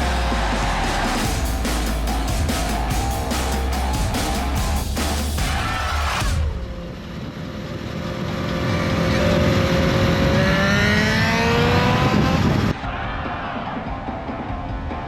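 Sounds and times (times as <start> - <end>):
music: 0.0 - 10.3, 11.5 - 15.0
motorcycle engine accelerating: 6.5 - 12.8.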